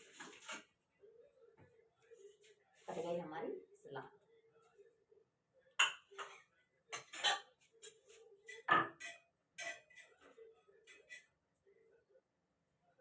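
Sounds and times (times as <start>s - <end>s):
utensils and dishes clinking: 5.8s - 11.3s.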